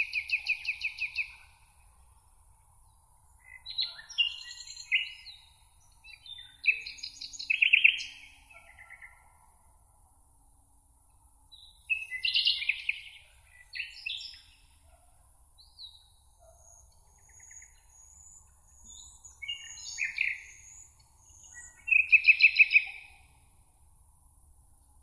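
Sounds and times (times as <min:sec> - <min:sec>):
songbird trilling song: 0:00.0 - 0:01.6, 0:03.3 - 0:09.3, 0:11.5 - 0:14.7, 0:15.6 - 0:23.3.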